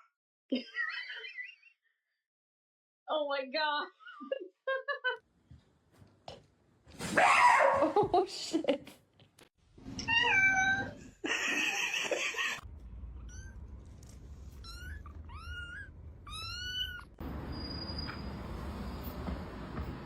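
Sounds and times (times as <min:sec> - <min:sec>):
cat meowing: 0:10.0 - 0:11.0, 0:13.2 - 0:13.6, 0:14.5 - 0:17.2.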